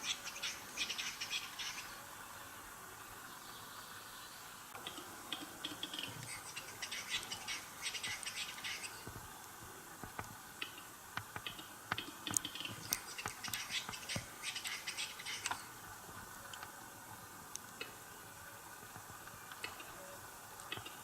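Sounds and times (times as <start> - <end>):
bird scraping hissing song: 0.0 - 2.0, 5.6 - 9.0, 12.3 - 15.7
bird dry clicks: 10.2 - 14.3.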